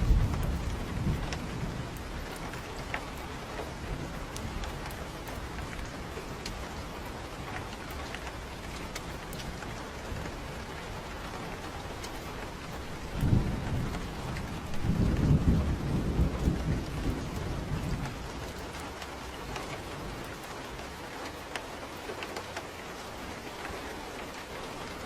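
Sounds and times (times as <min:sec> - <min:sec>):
thunder clap: 0:00.0 - 0:10.4, 0:11.2 - 0:20.3
rolling thunder rumble: 0:00.0 - 0:21.0
rain hissing: 0:00.0 - 0:25.0.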